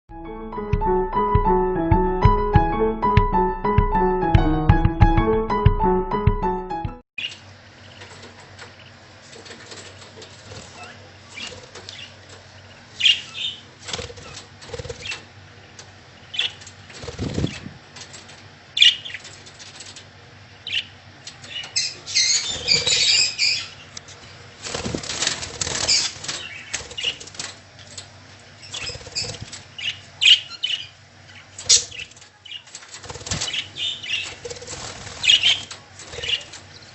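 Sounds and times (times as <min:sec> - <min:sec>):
chicks fluttering and rustling: 0:07.2 - 0:30.3, 0:31.3 - 0:36.9.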